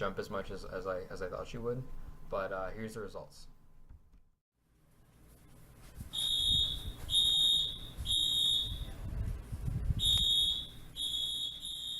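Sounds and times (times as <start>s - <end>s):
high electronic alarm beeps: 6.1s - 8.9s, 10.0s - 11.9s.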